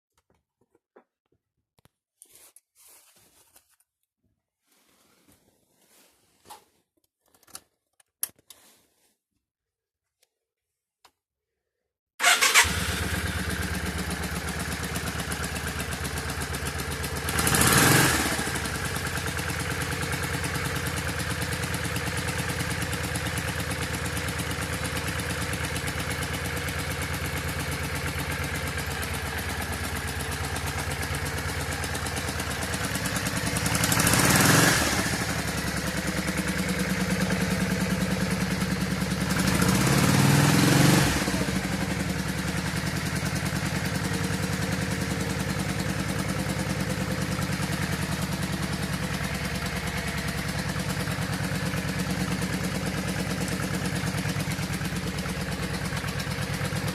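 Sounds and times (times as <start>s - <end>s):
engine throttle blips: 12.2s - 15.4s
motorcycle engine idling: 12.2s - 56.9s.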